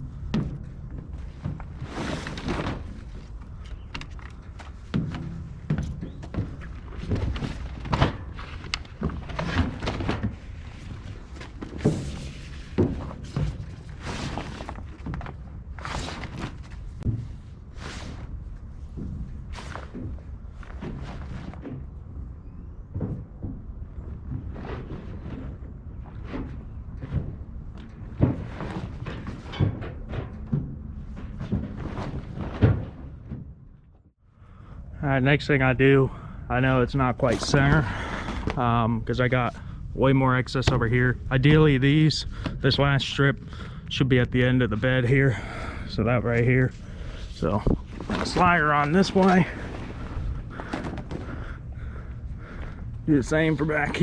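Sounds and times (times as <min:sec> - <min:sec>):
steel tarp thunks and knocks: 0:00.3 - 0:03.3, 0:04.9 - 0:18.4.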